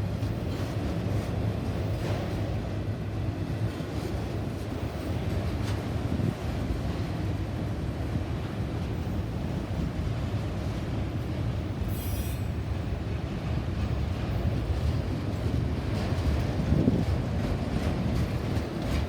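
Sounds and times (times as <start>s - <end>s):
train wheels rumbling on rail: 0.0s - 19.0s
high-pitched wheel squeal: 11.9s - 12.6s.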